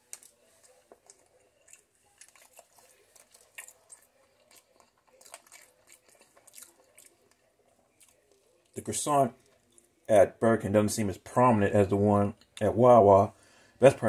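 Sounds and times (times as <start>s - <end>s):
person chewing food: 0.0s - 8.8s.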